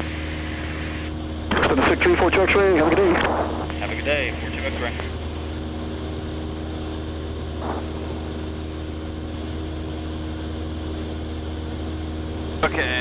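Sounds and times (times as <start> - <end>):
airplane engine and propeller droning: 0.0 - 13.0.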